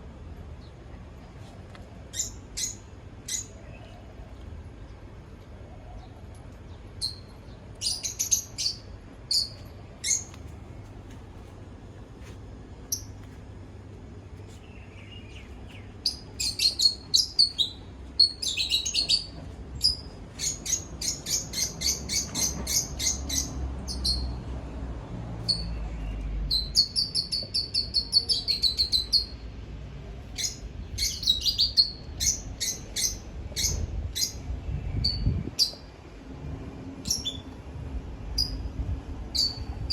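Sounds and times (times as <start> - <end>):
small bird chirping: 2.1 - 3.9, 6.7 - 10.4, 12.9 - 13.2, 14.4 - 24.4, 25.4 - 29.4, 30.4 - 35.9, 37.0 - 37.5, 39.3 - 39.9.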